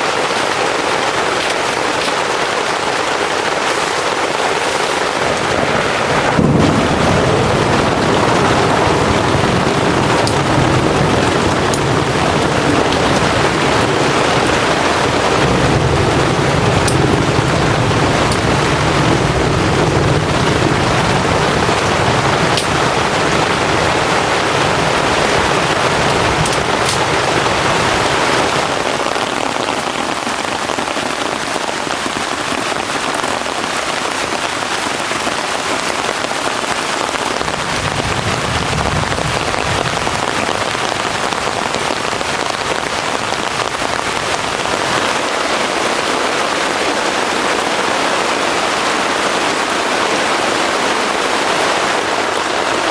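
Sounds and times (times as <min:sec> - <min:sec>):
heavy rain pouring: 0:00.0 - 0:52.9
low rumble: 0:05.2 - 0:28.5.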